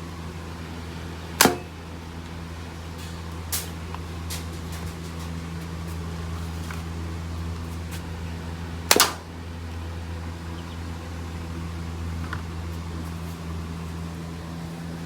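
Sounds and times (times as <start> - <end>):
steady low hum: 0.0 - 15.0
pistol shot: 8.9 - 9.2.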